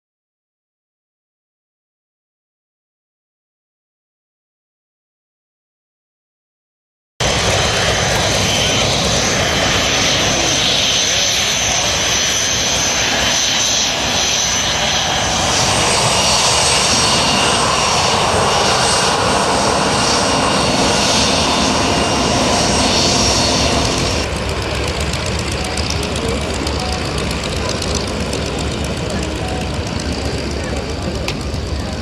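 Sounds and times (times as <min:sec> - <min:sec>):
aircraft engine running: 0:07.2 - 0:32.0
high whine: 0:07.2 - 0:32.0.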